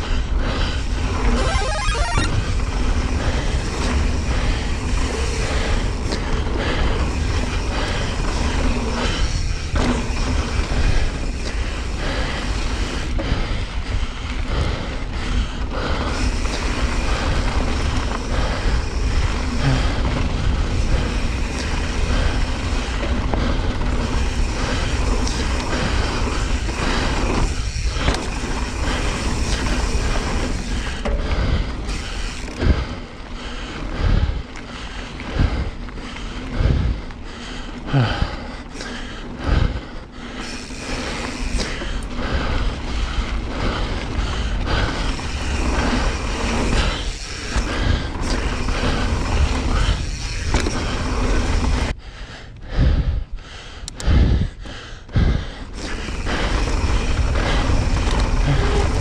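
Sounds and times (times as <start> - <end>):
bike tyres rolling on dirt: 0.0 - 52.6, 53.3 - 59.0
wind on microphone: 54.0 - 59.0.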